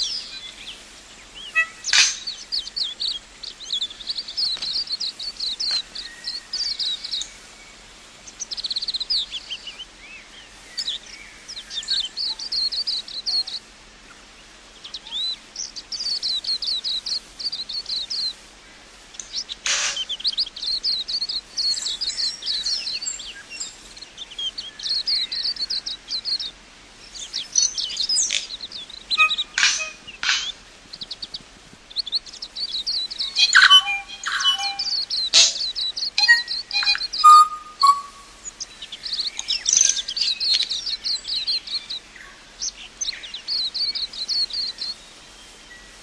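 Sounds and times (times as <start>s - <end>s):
bird chirping: 0.0s - 13.7s, 14.7s - 18.4s, 19.1s - 46.0s
short sharp bird calls: 1.4s - 2.5s, 19.2s - 20.4s, 27.8s - 30.6s, 33.2s - 38.6s.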